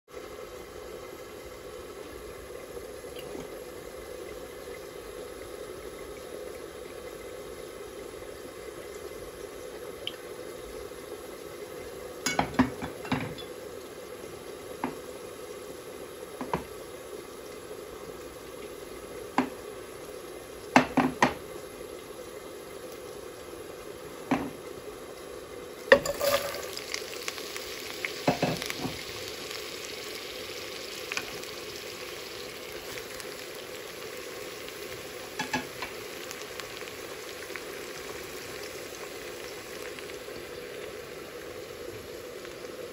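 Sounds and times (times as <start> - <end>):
food sizzling in oil: 0.1 - 42.9
oil heating in pot: 0.1 - 42.9
stirring clinks: 25.9 - 26.7.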